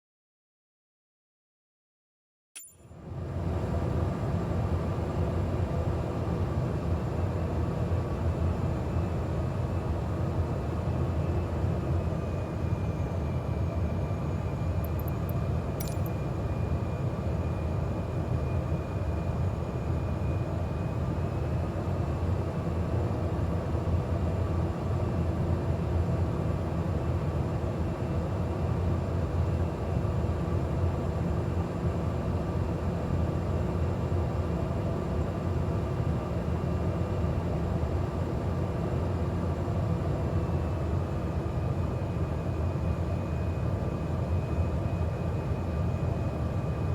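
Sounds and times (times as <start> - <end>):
brief click: 2.6 - 2.8, 14.8 - 16.1
turboprop engine and propeller drone: 2.6 - 46.9.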